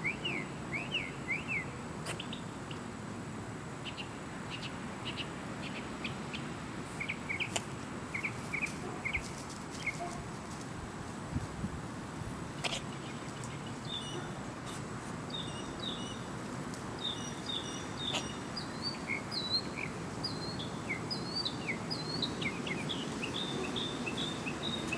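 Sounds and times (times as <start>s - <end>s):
steady background noise: 0.0s - 24.9s
small birds chirping: 3.8s - 10.2s, 12.5s - 24.9s.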